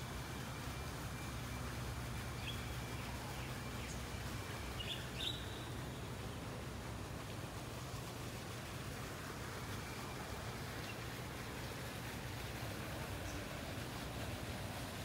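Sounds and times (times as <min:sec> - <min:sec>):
bird chirps: 0:04.8 - 0:05.8.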